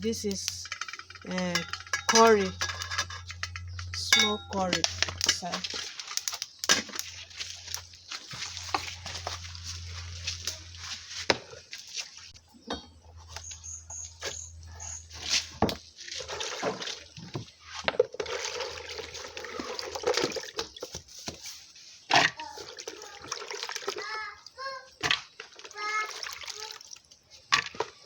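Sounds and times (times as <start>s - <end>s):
low hum: 0.0s - 5.8s, 7.2s - 15.5s
utensils clinking against pot: 0.0s - 7.8s
water sloshing and pouring: 0.5s - 12.4s, 15.1s - 28.0s.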